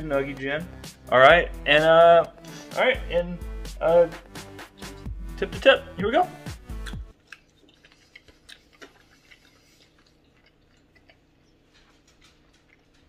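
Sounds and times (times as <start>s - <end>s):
people chewing crunchy food: 6.5s - 13.0s.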